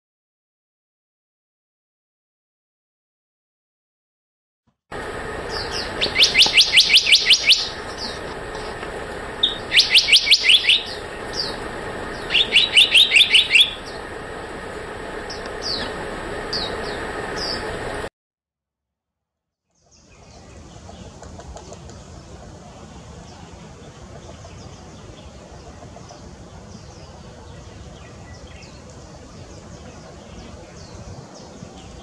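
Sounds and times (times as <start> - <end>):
steady background noise: 4.9 - 18.1, 19.8 - 32.0
bird singing high notes: 5.5 - 8.2, 9.4 - 14.1.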